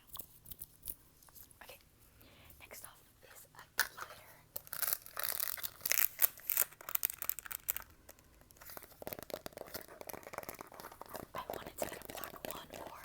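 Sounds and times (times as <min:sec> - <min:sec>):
crackling and clicking by hand: 0:04.6 - 0:13.0.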